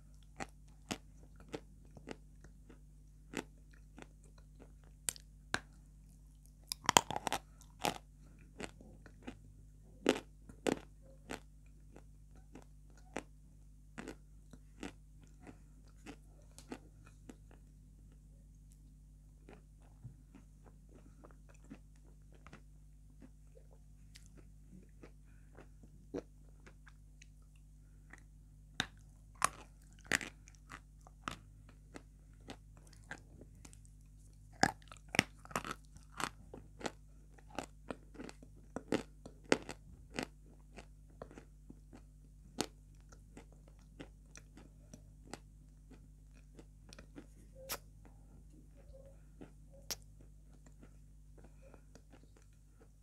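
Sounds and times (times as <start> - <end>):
chewing hard chalky chunks: 6.7 - 9.4, 28.1 - 47.8.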